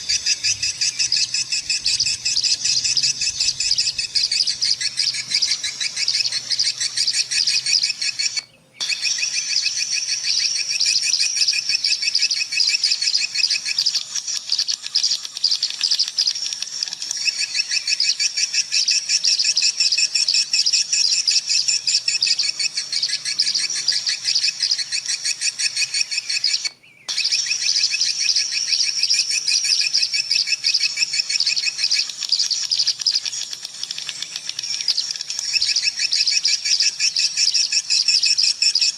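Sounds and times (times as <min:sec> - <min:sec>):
swiftlets twittering: 0:00.0 - 0:38.9.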